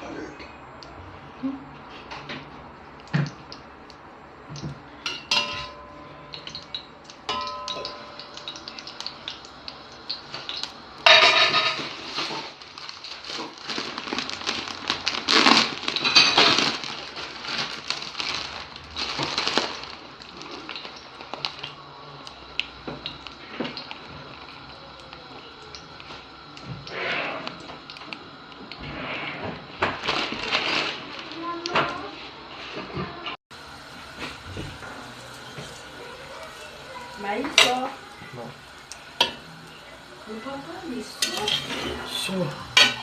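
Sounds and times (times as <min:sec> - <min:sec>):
kitchen utensils clinking: 0:05.0 - 0:09.5, 0:10.1 - 0:12.6, 0:15.4 - 0:17.7, 0:34.6 - 0:39.5, 0:40.2 - 0:43.0
cookware rattling and scraping: 0:11.0 - 0:12.5, 0:15.8 - 0:17.0, 0:41.1 - 0:43.0.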